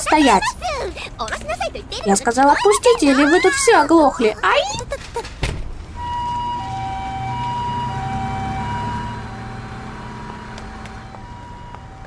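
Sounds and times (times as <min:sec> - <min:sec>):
low engine hum: 0:04.8 - 0:12.0
two-tone siren: 0:06.0 - 0:12.0.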